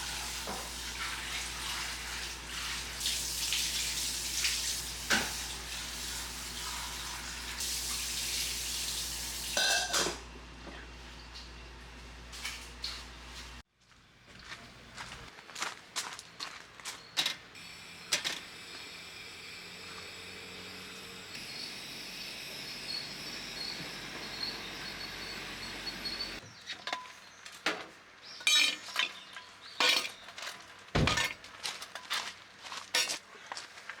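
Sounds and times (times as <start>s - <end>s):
faint insect trill: 17.6s - 26.4s.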